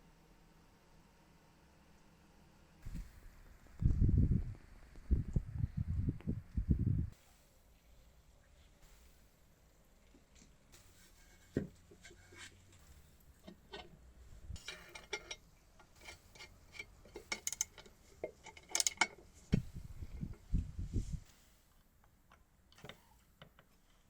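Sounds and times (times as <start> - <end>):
metal parts and tools clinking: 12.0 - 19.3.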